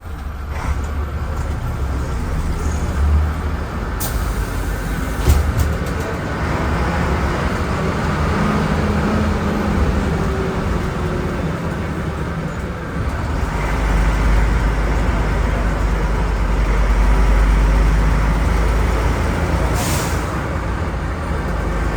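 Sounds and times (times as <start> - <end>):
bus diesel engine rumbling: 0.0 - 21.9.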